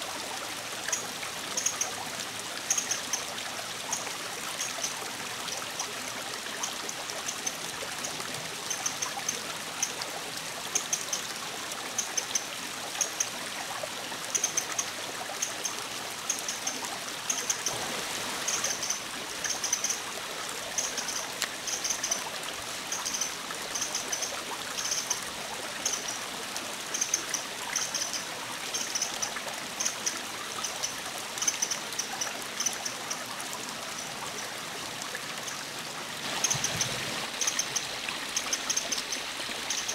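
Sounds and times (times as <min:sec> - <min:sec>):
stream rushing: 0:13.9 - 0:39.9.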